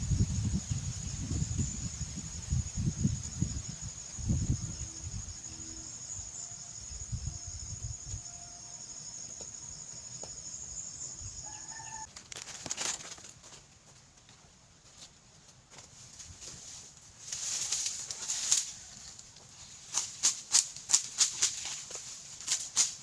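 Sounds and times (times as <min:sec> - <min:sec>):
high-pitched insect drone: 0:00.0 - 0:12.1
rooster crowing: 0:11.4 - 0:12.1.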